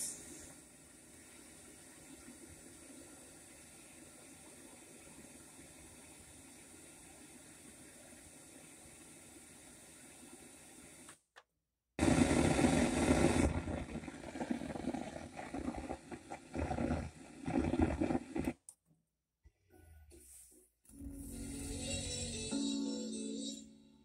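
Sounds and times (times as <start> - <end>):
receiver hiss and static: 0.0 - 11.2, 12.0 - 18.6.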